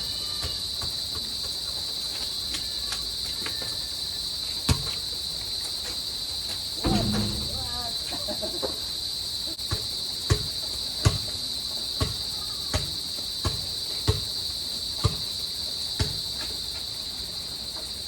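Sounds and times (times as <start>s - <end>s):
crickets chirping: 0.0s - 18.0s
basketball bouncing: 6.8s - 8.1s.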